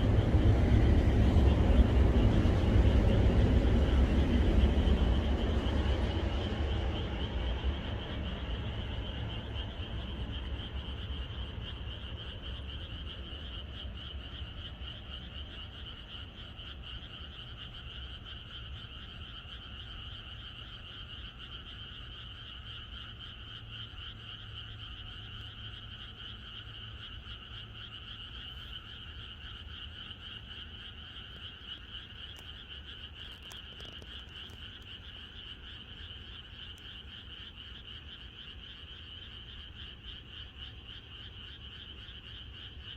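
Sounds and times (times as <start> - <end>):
low rumble: 0.0 - 13.8
frogs trilling in chorus: 0.0 - 42.9.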